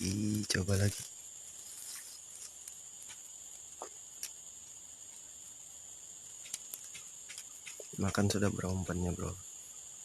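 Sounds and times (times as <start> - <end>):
high-pitched insect chorus: 0.0 - 10.0
faint clicks: 6.4 - 8.2.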